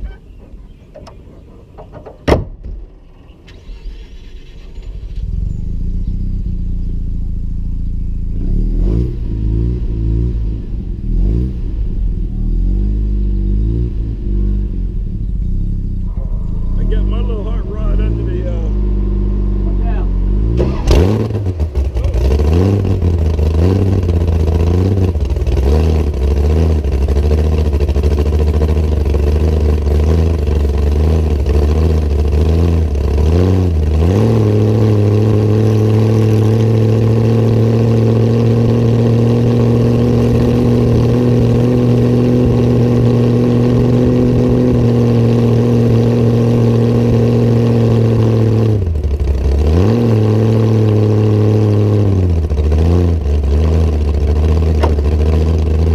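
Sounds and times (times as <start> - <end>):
loud engine revving: 5.2 - 55.9.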